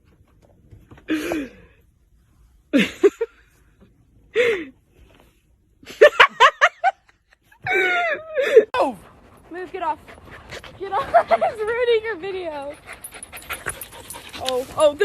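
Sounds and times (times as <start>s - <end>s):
person laughing: 2.7s - 3.4s.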